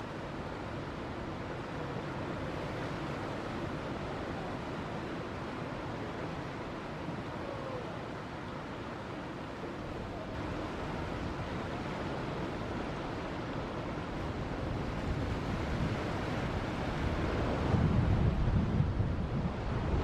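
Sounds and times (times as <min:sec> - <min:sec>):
ocean surf breaking: 0:00.0 - 0:20.0
wind buffeting microphone: 0:10.4 - 0:20.0.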